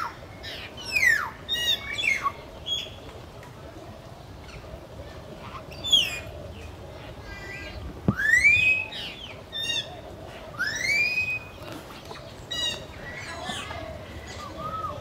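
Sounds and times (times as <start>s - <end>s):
birds whistling: 0.0s - 3.1s, 5.5s - 6.8s, 7.6s - 15.0s.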